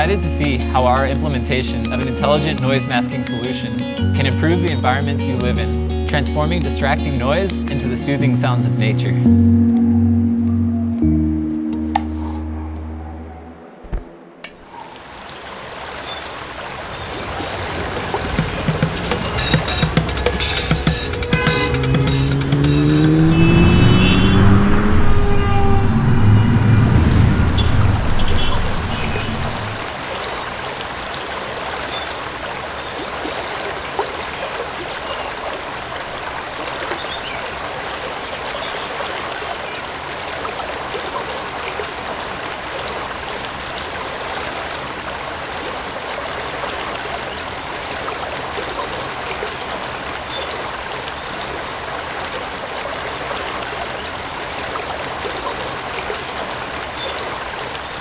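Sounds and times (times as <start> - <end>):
running stream water: 0.0 - 12.6, 13.8 - 58.0
loud low rumble with rising tones: 9.8 - 14.4, 21.8 - 29.8.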